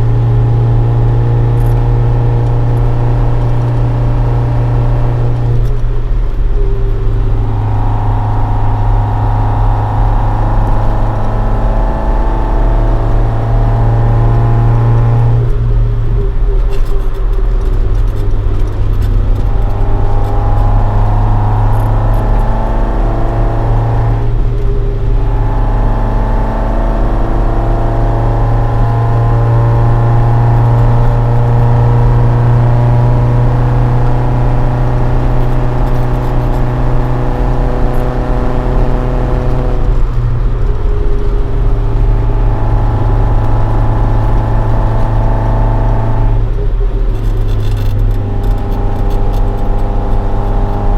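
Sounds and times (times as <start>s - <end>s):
car engine running while driving: 0.0s - 50.9s.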